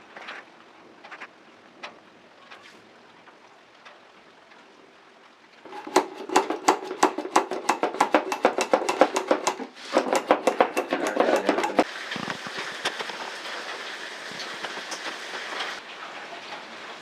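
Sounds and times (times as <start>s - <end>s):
oil can pump clicking: 5.7s - 11.8s.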